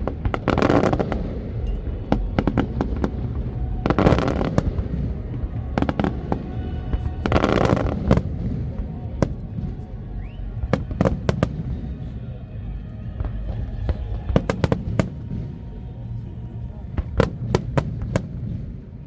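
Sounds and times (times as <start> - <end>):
fireworks bangs: 0.0 - 12.1, 13.1 - 16.1, 16.7 - 19.0
fireworks crackling: 0.0 - 19.0.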